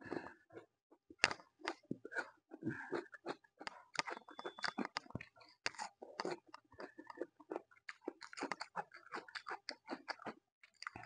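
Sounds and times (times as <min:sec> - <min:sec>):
crisp cucumber crunching: 0:02.9 - 0:11.0.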